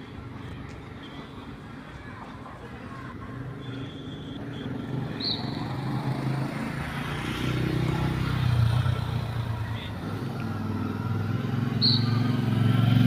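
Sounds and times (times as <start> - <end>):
street background noise: 0.0 - 13.0
vehicle engine approaching: 4.9 - 13.0.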